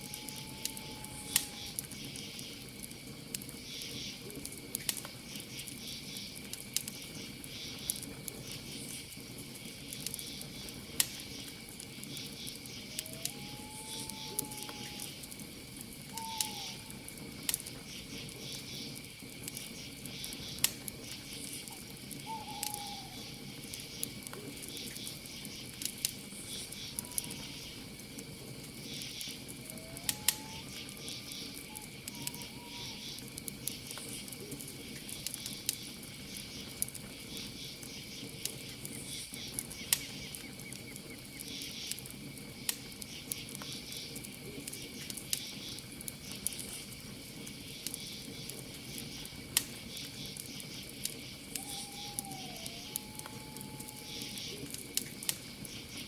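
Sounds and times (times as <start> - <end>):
campfire crackling and popping: 0.0 - 56.0
crickets trilling: 0.0 - 56.0
soft hooting bird calls: 12.7 - 15.2, 16.1 - 17.1, 22.1 - 23.5, 28.9 - 33.2, 51.5 - 54.7
pulsing insect chirps: 50.0 - 56.0.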